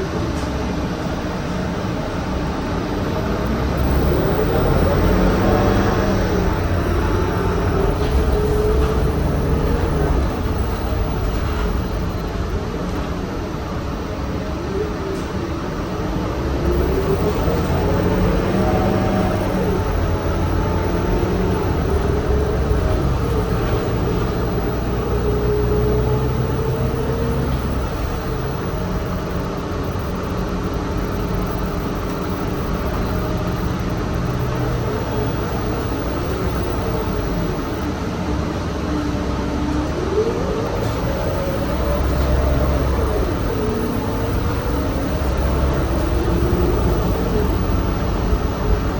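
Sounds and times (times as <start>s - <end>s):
bus drive whine: 0.0s - 48.9s
bus rumble: 3.6s - 13.6s.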